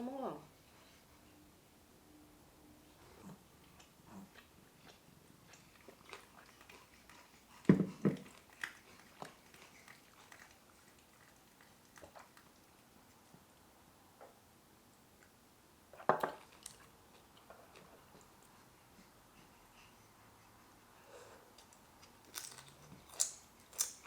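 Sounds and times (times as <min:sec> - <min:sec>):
close chewing and biting: 0:03.3 - 0:13.3, 0:21.5 - 0:24.0.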